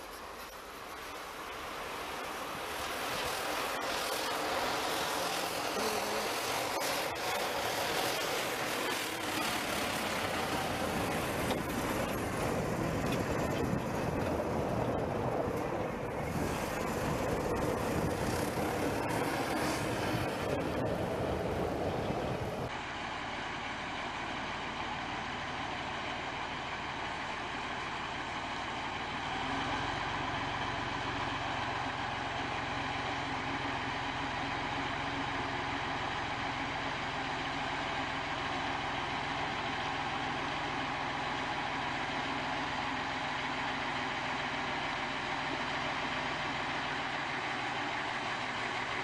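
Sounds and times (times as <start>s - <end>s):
heavy truck engine running: 0.0s - 49.0s.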